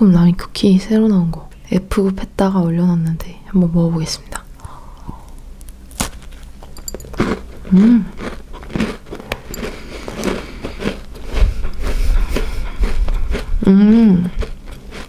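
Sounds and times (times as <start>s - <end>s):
crunchy biting and chewing: 4.3s - 15.0s
person humming: 7.7s - 8.2s, 13.6s - 14.4s.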